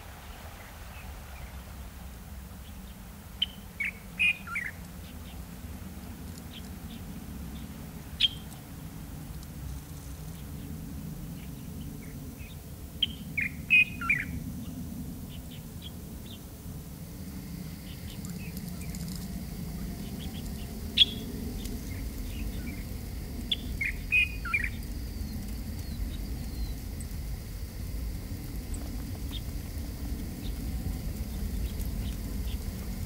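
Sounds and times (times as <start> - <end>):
steady low rumble: 0.0 - 33.0
small birds chirping: 2.6 - 5.5, 6.2 - 8.7, 17.7 - 33.0.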